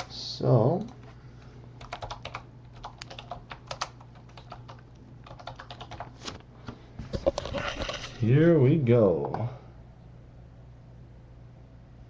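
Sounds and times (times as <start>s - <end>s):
steady low hum: 0.0s - 12.0s
typing on computer keyboard: 1.8s - 6.1s.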